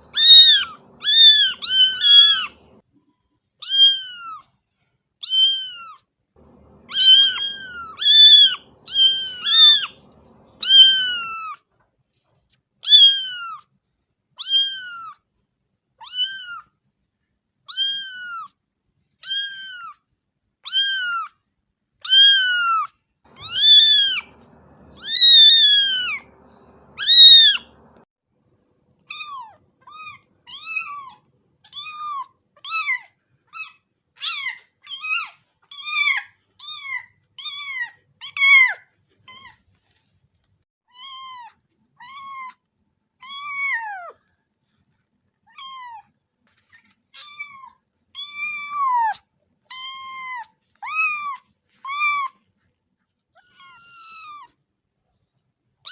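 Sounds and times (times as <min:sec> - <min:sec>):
cat meowing: 0:00.0 - 0:02.8, 0:03.6 - 0:04.4, 0:05.2 - 0:11.6, 0:12.8 - 0:13.6, 0:14.4 - 0:15.2, 0:16.0 - 0:16.7, 0:17.7 - 0:18.5, 0:19.2 - 0:20.0, 0:20.6 - 0:21.3, 0:22.0 - 0:28.0, 0:29.1 - 0:39.6, 0:43.2 - 0:44.2, 0:45.5 - 0:46.1, 0:47.2 - 0:52.3, 0:53.4 - 0:54.5.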